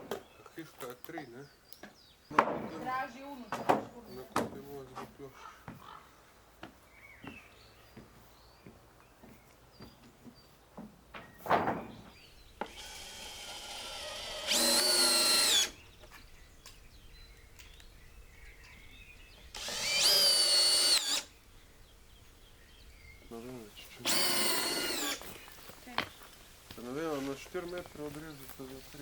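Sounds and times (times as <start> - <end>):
cordless drill running: 12.6 - 15.8, 19.5 - 21.4, 24.0 - 25.4.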